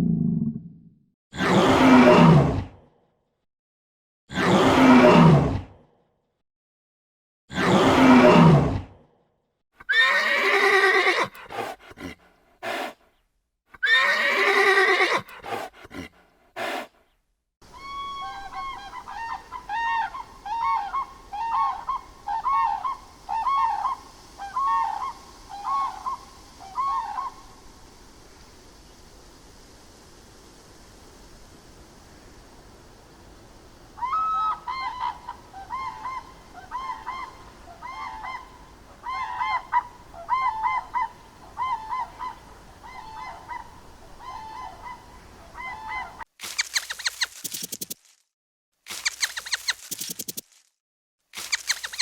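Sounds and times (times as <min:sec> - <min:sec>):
short repeated animal calls: 0:46.4 - 0:48.1, 0:48.9 - 0:50.6, 0:51.4 - 0:52.0.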